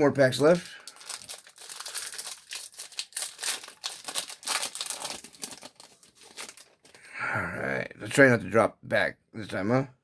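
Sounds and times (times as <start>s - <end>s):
foil wrapper crinkling: 0.4s - 7.0s.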